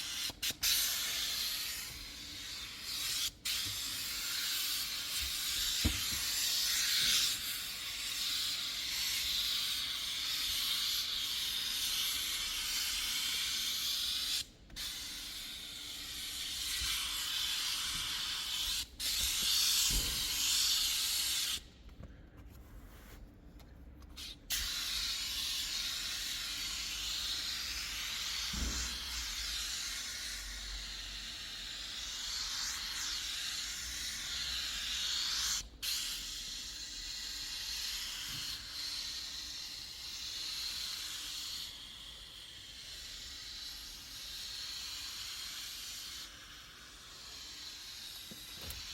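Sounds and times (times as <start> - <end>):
cleaning spray hissing: 24.5 - 48.9.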